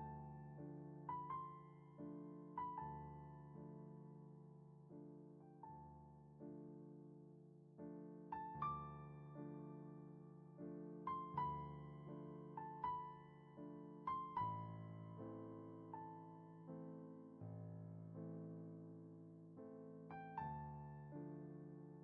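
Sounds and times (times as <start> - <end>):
slow solo piano: 0.0 - 22.0.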